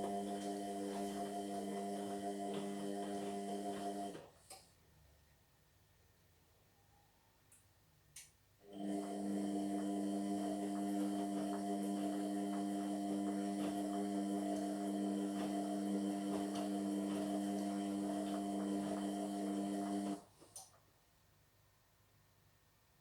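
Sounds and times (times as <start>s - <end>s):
washing machine motor humming: 0.0s - 4.3s, 8.6s - 20.3s.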